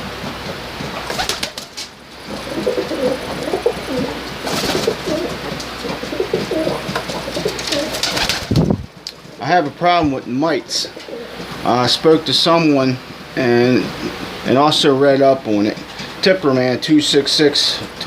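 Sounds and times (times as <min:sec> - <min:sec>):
pigeons cooing: 0:01.0 - 0:09.7, 0:10.3 - 0:11.7.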